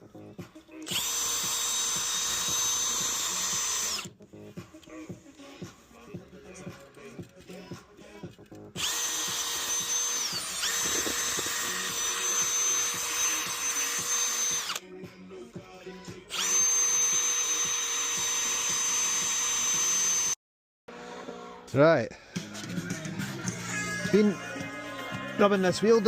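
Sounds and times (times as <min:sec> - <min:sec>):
drill wire brush scouring metal: 0:00.9 - 0:04.1, 0:08.8 - 0:14.8.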